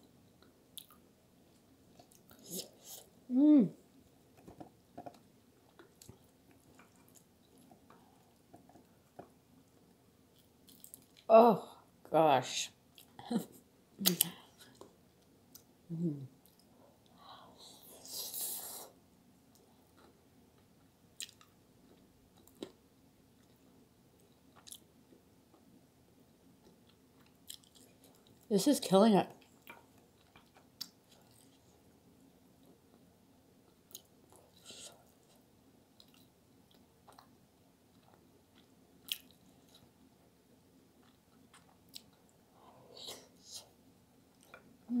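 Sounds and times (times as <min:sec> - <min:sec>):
faint chewing: 0:00.0 - 0:03.2, 0:03.9 - 0:11.3, 0:19.5 - 0:22.8, 0:23.4 - 0:25.8, 0:26.6 - 0:28.5, 0:29.3 - 0:40.1, 0:40.9 - 0:45.0.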